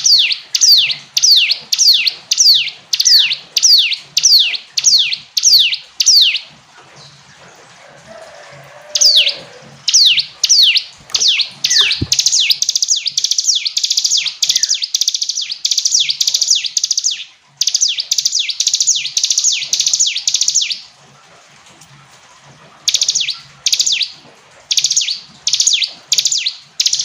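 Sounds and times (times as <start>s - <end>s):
bird singing sharp notes: 9.0s - 20.8s.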